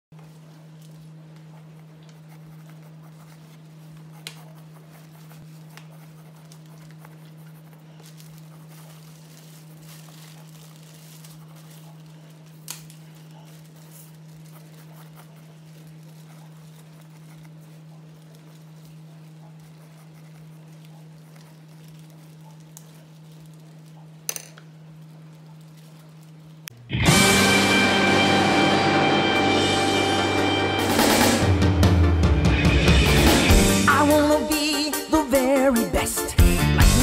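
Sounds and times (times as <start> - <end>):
steady low hum: 0.2 - 34.6
pencil scratching on board: 1.4 - 9.1, 13.3 - 21.6.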